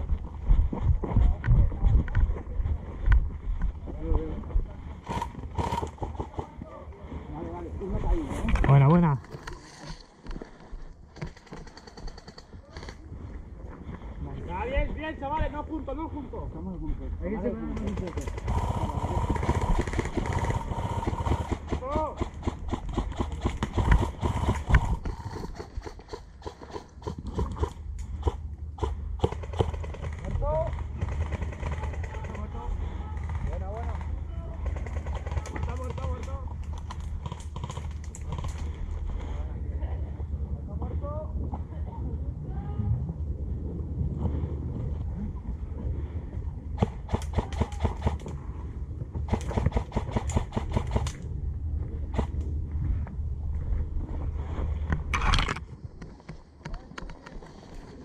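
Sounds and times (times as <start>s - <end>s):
footsteps on rough ground: 0.0s - 6.7s
low rumble: 0.0s - 11.2s, 27.1s - 58.0s
airsoft guns firing: 49.3s - 51.2s.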